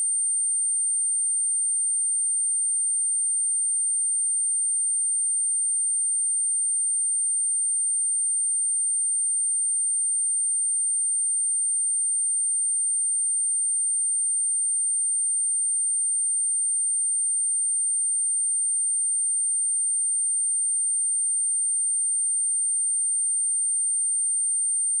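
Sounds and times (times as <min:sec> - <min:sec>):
high-pitched sine-wave test tone: 0:00.0 - 0:25.0.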